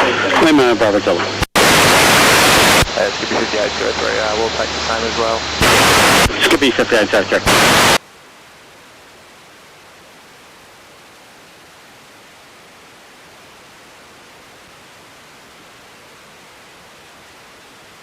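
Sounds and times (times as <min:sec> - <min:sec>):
air traffic control radio: 0:00.0 - 0:08.0
radio static hiss: 0:00.0 - 0:18.0.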